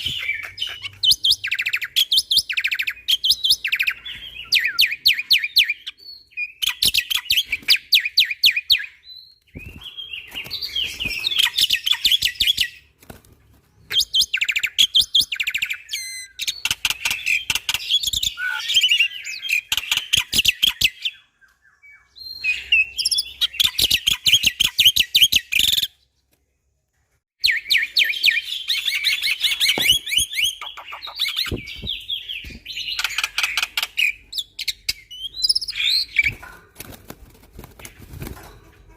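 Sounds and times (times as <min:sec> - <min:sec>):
bird singing sharp repeated notes: 0:27.4 - 0:36.4.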